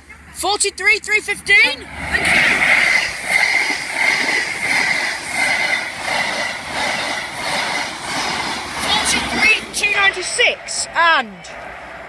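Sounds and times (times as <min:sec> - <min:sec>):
wheels over rail joints: 0:00.0 - 0:12.0
train passing at speed: 0:00.1 - 0:12.0.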